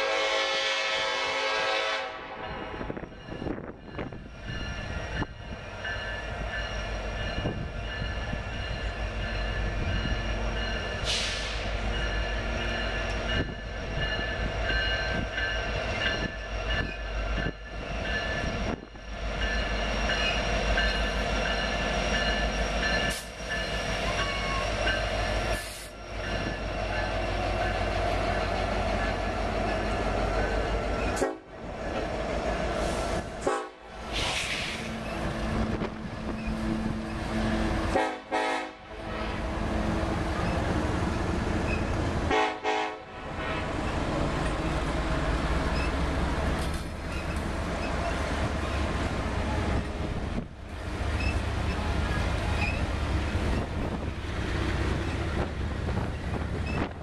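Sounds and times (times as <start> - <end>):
locomotive horn: 0.0 - 2.9, 31.1 - 31.5, 33.4 - 33.9, 37.4 - 39.6, 42.3 - 43.7
diesel locomotives rumbling: 0.0 - 57.0.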